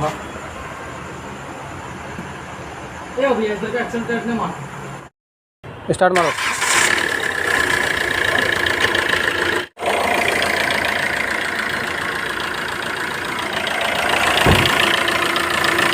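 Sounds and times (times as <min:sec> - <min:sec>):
diesel engine idling: 0:06.2 - 0:15.9.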